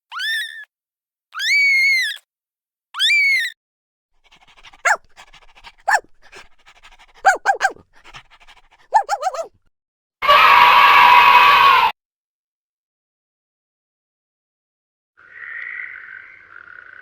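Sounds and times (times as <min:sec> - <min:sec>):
dog panting: 0:04.2 - 0:09.5
dog yelping: 0:04.3 - 0:09.6
dog whining: 0:04.4 - 0:09.5.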